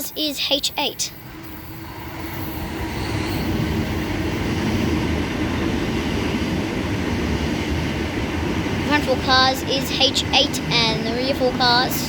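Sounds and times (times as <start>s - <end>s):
electric train rumbling past: 0.0s - 12.0s.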